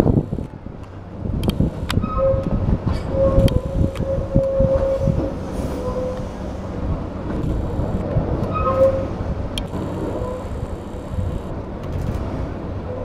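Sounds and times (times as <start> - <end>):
train wheels rumbling: 0.8 - 13.0
wheel squeals: 2.0 - 6.4, 8.5 - 9.1.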